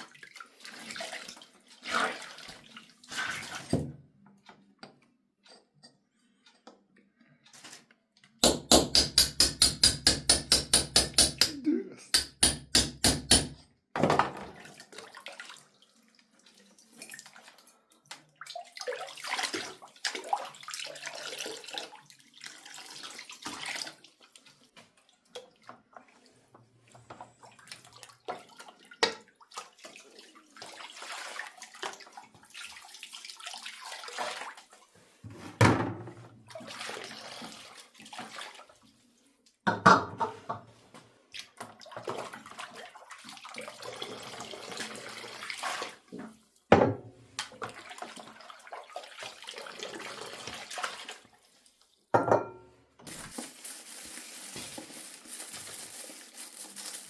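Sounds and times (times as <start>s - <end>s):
water running and splashing: 53.1s - 57.0s.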